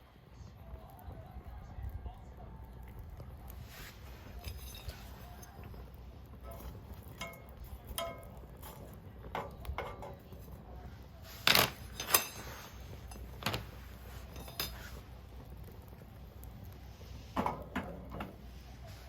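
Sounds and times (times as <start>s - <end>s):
metal cookware clanking: 4.2s - 5.7s, 6.4s - 10.6s, 11.3s - 15.0s, 17.3s - 18.4s.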